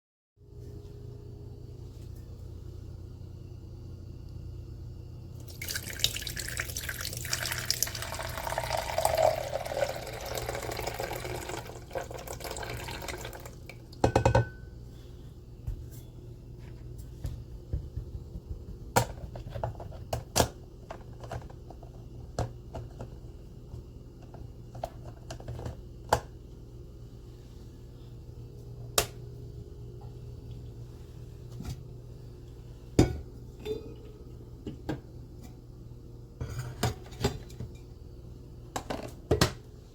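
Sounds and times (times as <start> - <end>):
steady low hum: 0.4 - 39.9
tap water running into container: 5.4 - 13.8.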